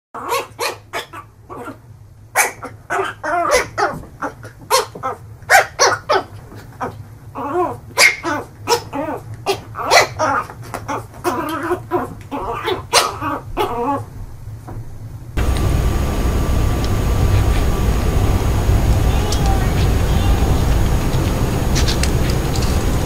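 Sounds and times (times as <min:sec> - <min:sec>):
dog barking: 0:00.2 - 0:01.8, 0:02.4 - 0:06.3, 0:08.0 - 0:11.8, 0:12.4 - 0:14.0
steady low hum: 0:14.1 - 0:23.0.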